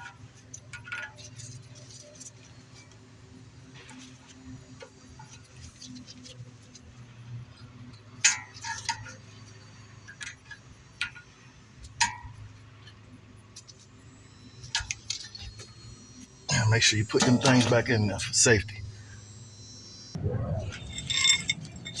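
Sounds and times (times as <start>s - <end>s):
low steady hum: 0.0s - 22.0s
metallic clinks of hand tools: 20.7s - 22.0s.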